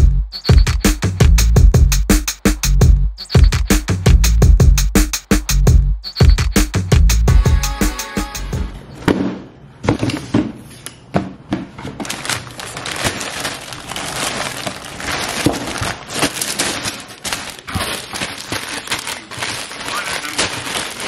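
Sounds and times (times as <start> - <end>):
cellophane bags crinkling: 11.9 - 21.0.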